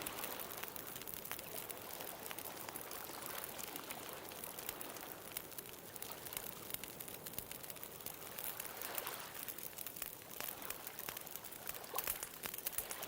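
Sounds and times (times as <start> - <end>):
bonfire crackling and popping: 0.0 - 13.0.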